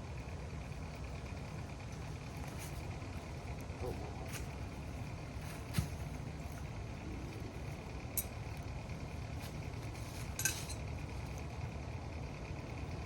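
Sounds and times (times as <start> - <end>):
steady low rumble: 0.0 - 13.0
metal clinking: 8.1 - 8.6, 10.0 - 11.0.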